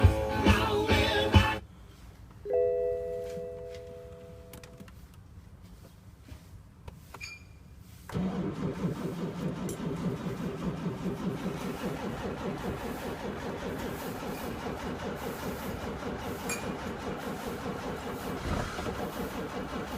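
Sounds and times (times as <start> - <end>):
diesel engine starting and running: 0.0 - 5.4, 7.9 - 19.9
dashboard warning chime: 2.4 - 4.9.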